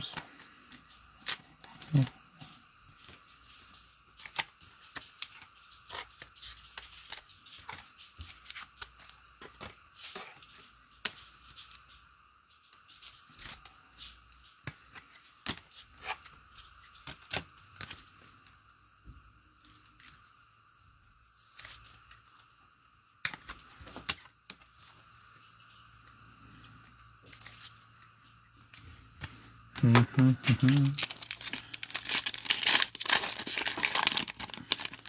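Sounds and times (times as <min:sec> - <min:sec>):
foil wrappers tearing and crinkling: 0:01.2 - 0:02.1, 0:04.2 - 0:09.7, 0:29.8 - 0:35.0.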